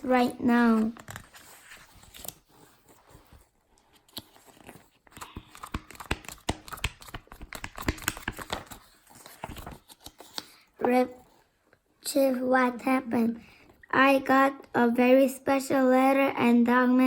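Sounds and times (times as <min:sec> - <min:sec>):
paper rustling and crinkling: 0:00.5 - 0:10.7
clicks and taps: 0:05.2 - 0:08.7.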